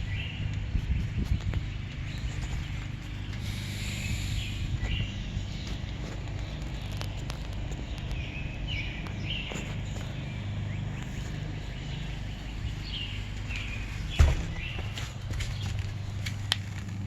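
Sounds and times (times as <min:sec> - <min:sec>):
birds chirping: 0:00.0 - 0:17.0
low background hum: 0:00.0 - 0:17.0
sharp thump: 0:14.2 - 0:14.9.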